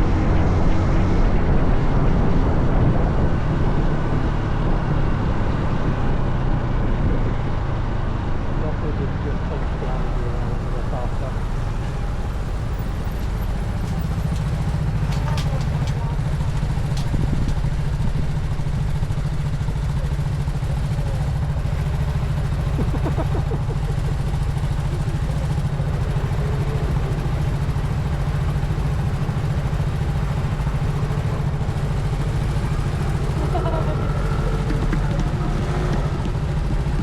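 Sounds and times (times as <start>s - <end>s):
road and wind noise: 0.0s - 37.0s
motorbike engine running: 10.0s - 37.0s.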